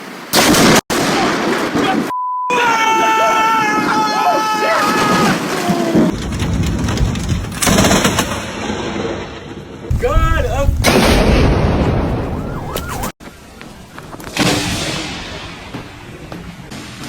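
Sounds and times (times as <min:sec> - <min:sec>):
thunder cracks and rumble: 0:05.1 - 0:12.7.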